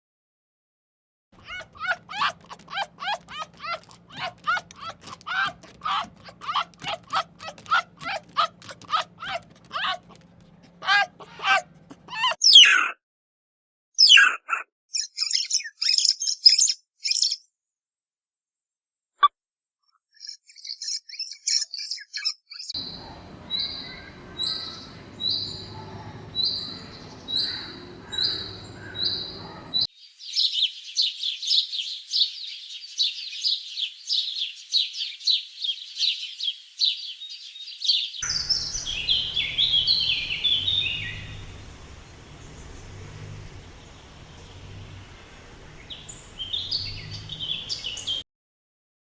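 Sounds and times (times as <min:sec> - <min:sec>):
birds chirping: 0:01.4 - 0:12.4, 0:22.8 - 0:48.2
dense high bird twittering: 0:01.4 - 0:12.4, 0:30.2 - 0:41.6
repeated short bird call: 0:01.4 - 0:12.4
descending bird chirps: 0:30.2 - 0:41.7.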